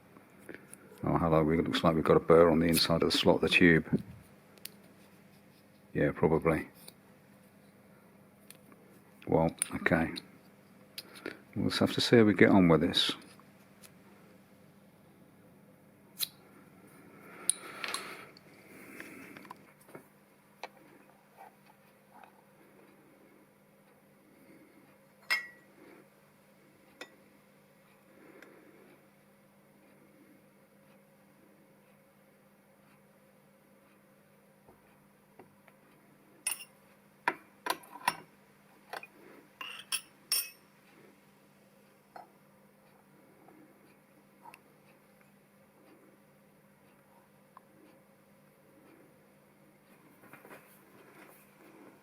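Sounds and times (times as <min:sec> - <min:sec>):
faint steady hum: 0:00.0 - 0:52.0
metal workpieces clinking: 0:36.5 - 0:36.7, 0:39.6 - 0:40.6.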